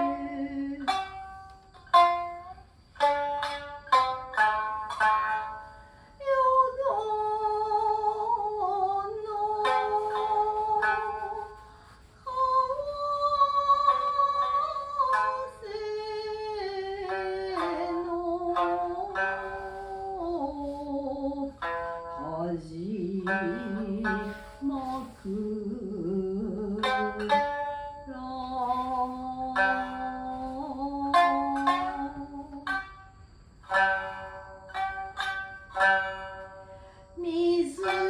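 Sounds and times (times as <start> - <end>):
plucked shamisen and strings: 0.0 - 38.0
person singing long sliding notes: 6.2 - 33.0.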